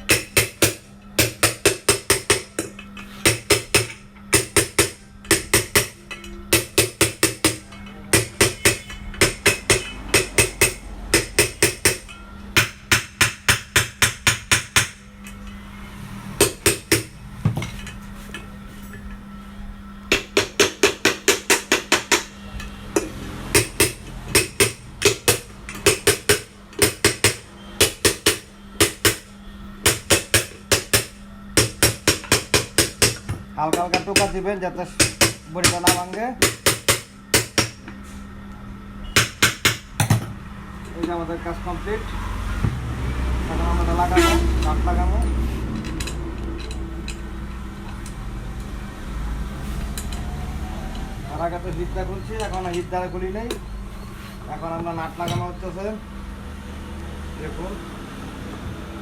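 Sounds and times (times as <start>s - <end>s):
hammer tapping on metal: 0.0s - 15.4s, 16.4s - 17.8s, 20.1s - 34.4s, 35.0s - 37.9s, 39.2s - 40.3s.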